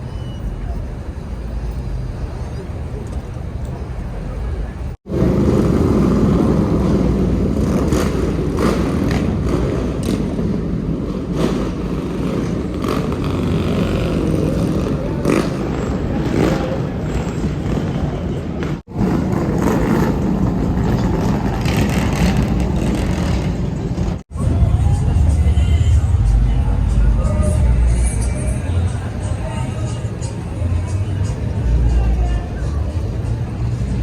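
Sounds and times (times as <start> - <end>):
vehicles passing: 0.0 - 34.0.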